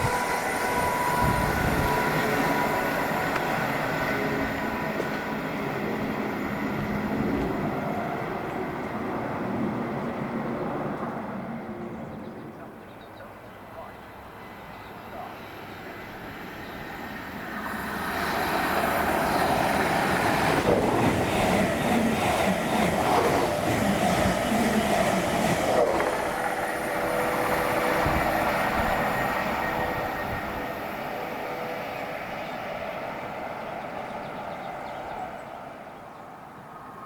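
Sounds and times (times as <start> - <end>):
train passing: 0.0 - 37.0.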